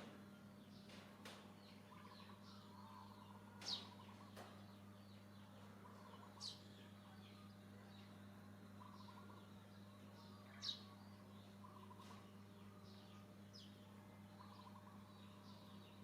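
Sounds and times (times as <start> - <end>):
steady low hum: 0.0 - 16.0
trilling calls: 1.7 - 16.0
faint high-pitched chirps: 5.9 - 16.0.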